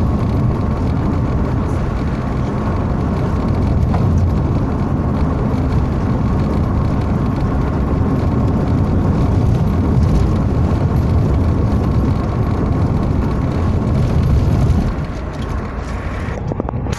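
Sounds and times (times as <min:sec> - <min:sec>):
motor vehicle running: 0:00.0 - 0:16.9.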